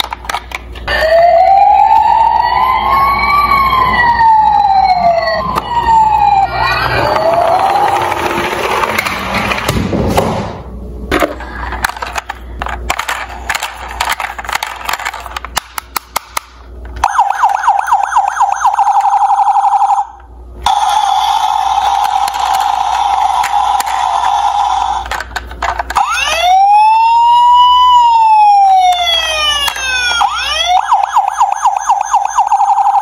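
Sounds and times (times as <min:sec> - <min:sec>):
toy cars clicking and clattering: 0:00.0 - 0:00.8, 0:11.3 - 0:16.5, 0:21.6 - 0:26.1
wailing siren: 0:00.8 - 0:08.8, 0:17.0 - 0:25.1, 0:25.9 - 0:33.0
steady siren tone: 0:00.9 - 0:08.5, 0:17.0 - 0:25.0, 0:26.0 - 0:33.0
rapid warbling siren: 0:00.9 - 0:08.6, 0:17.0 - 0:25.0, 0:26.0 - 0:33.0.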